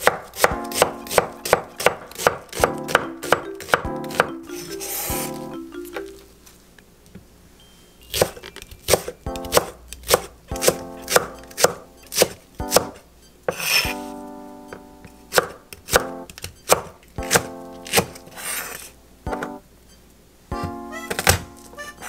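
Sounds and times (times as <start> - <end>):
knife chopping on wooden board: 0.0 - 4.3, 8.1 - 14.1, 15.3 - 18.6
soft background music: 0.0 - 6.6, 7.6 - 22.0.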